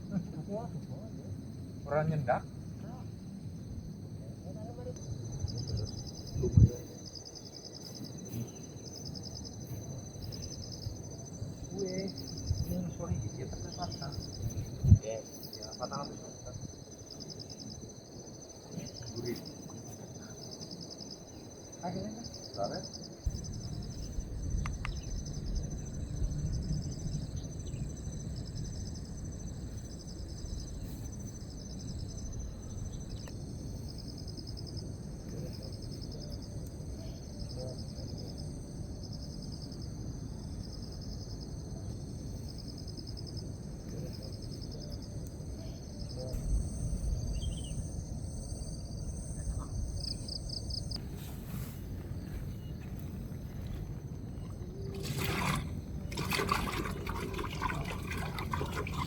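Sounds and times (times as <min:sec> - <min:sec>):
crickets chirping: 0:00.0 - 0:59.0
high-pitched insect drone: 0:44.0 - 0:51.0.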